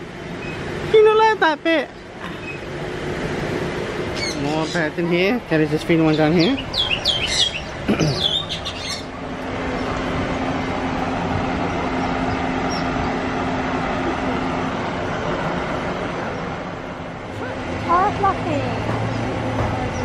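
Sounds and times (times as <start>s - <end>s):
small birds chirping: 1.9s - 2.8s, 4.0s - 10.1s, 12.0s - 13.3s
low hum: 1.9s - 20.0s
bird squawk: 4.2s - 4.9s, 6.4s - 9.1s.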